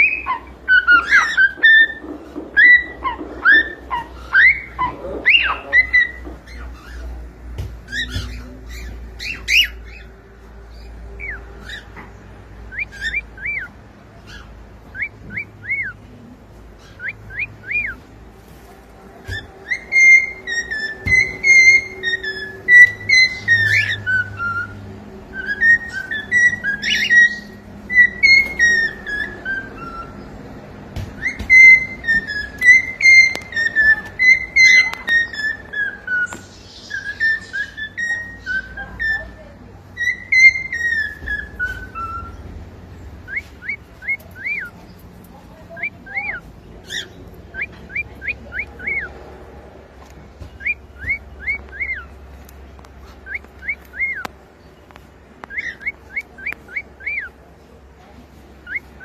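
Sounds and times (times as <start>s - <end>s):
cockatiel whistling: 0.0s - 7.0s, 19.3s - 30.3s, 31.2s - 42.4s, 43.2s - 44.7s, 45.8s - 49.1s, 50.5s - 52.2s, 53.2s - 54.3s, 55.4s - 57.3s, 58.6s - 59.0s.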